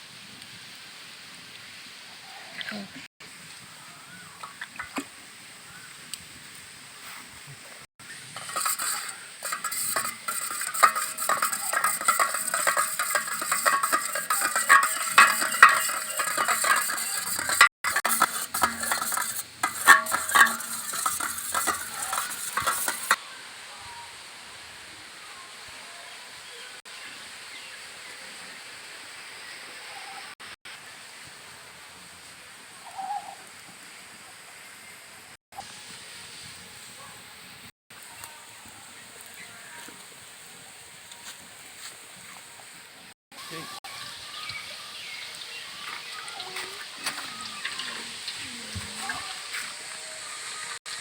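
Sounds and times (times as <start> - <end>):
chicken sizzling in hot oil: 8.0 - 23.2, 35.5 - 51.0
utensil stirring and clinking: 8.2 - 23.2, 46.8 - 49.4.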